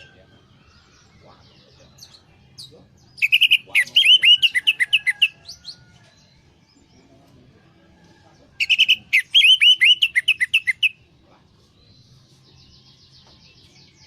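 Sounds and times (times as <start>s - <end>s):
thrush singing whistled notes: 2.6s - 5.4s, 8.6s - 11.0s.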